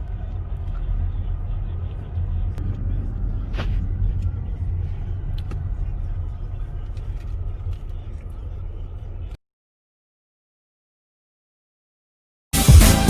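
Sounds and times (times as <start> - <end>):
car interior rumble: 0.0 - 9.4.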